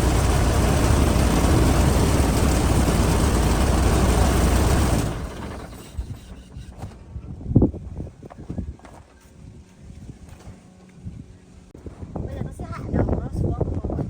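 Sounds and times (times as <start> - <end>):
truck engine rumbling: 0.0 - 6.6.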